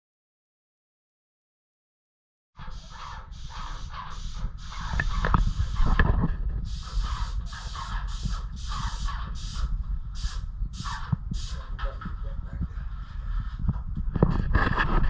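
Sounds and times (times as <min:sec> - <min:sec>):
spray paint hissing bursts: 0:02.6 - 0:06.0, 0:06.6 - 0:11.8
low rumble: 0:04.2 - 0:15.0.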